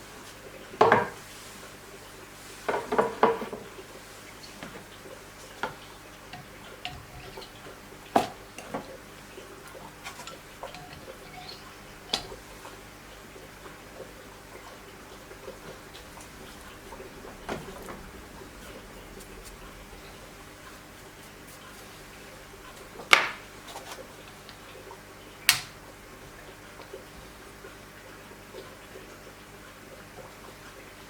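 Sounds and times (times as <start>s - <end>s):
metal parts clicking and clinking: 10.0s - 12.4s.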